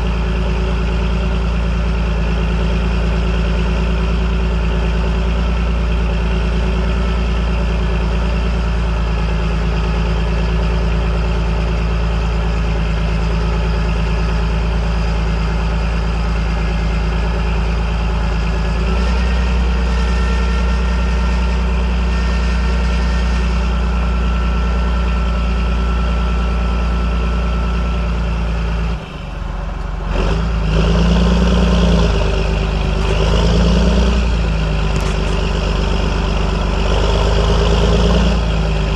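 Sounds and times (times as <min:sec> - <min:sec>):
tractor diesel engine running: 0:00.0 - 0:38.9
engine revving: 0:30.0 - 0:38.9.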